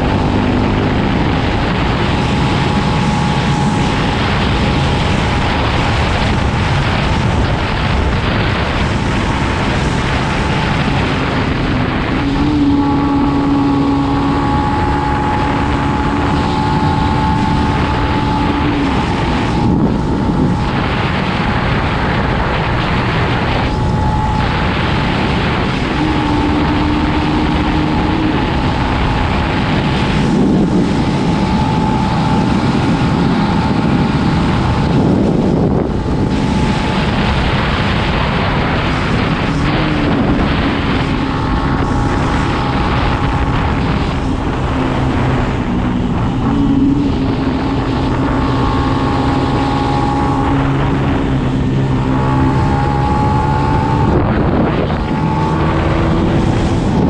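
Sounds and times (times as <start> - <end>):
dirt bike engine: 0.0 - 57.0
wind buffeting microphone: 0.0 - 57.0.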